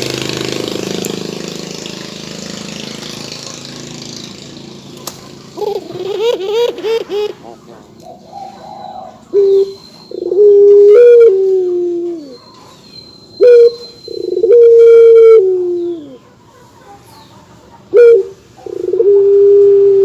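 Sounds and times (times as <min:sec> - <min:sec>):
dove cooing: 0:05.0 - 0:12.5, 0:13.4 - 0:16.3, 0:17.8 - 0:20.0.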